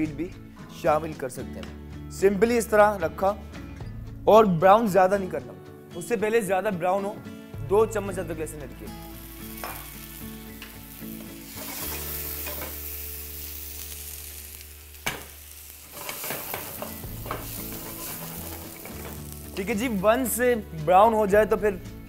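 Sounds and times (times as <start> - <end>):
onions sizzling in hot oil: 9.0 - 20.0.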